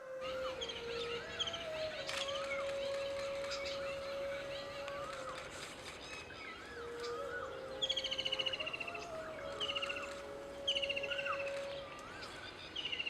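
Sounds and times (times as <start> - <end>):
whistled bird calls: 0.0 - 13.0.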